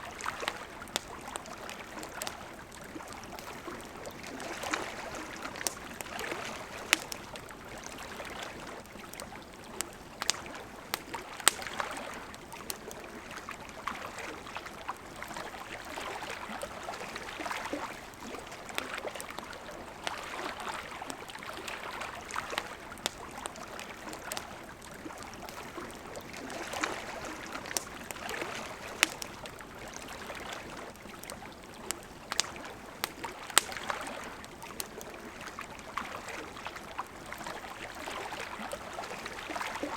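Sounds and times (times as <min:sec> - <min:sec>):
campfire crackling and popping: 0:00.0 - 0:39.9
river water flowing: 0:00.0 - 0:39.9.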